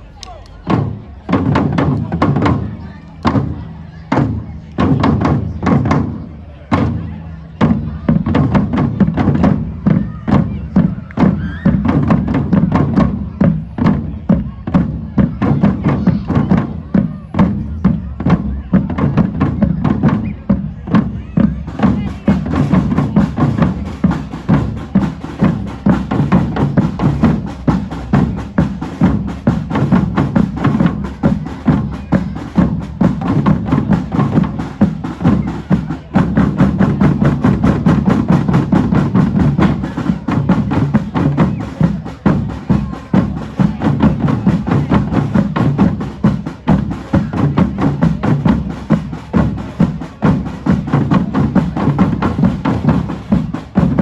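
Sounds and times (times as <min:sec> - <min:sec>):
low drums beating: 0:00.0 - 0:54.0
drum band playing: 0:00.6 - 0:54.0.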